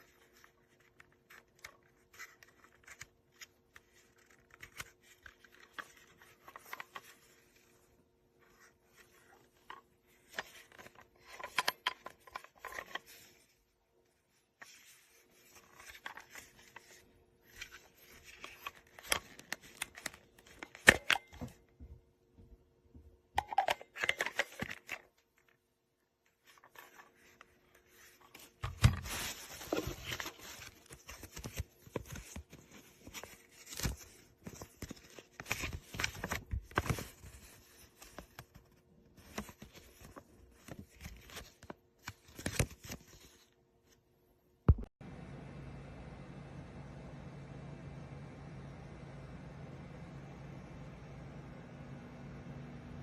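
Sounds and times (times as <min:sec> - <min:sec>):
rustling and scraping: 0:26.3 - 0:43.5.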